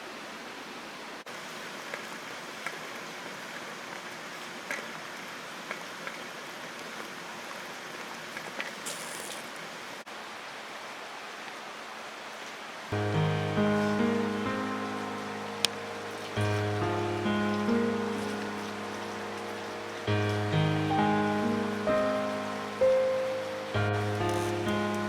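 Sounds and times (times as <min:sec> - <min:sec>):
campfire hissing: 0:01.3 - 0:10.0, 0:12.9 - 0:25.0
brief high hiss: 0:08.8 - 0:09.5.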